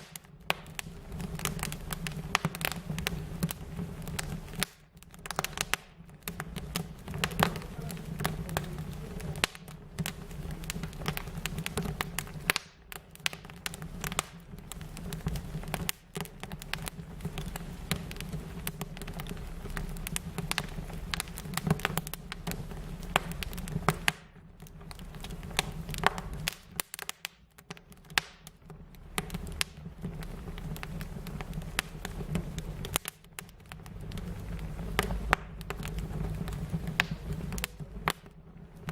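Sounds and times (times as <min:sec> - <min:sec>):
fire crackling and popping: 0:00.0 - 0:38.9
low rumble: 0:05.2 - 0:12.4, 0:28.9 - 0:38.9.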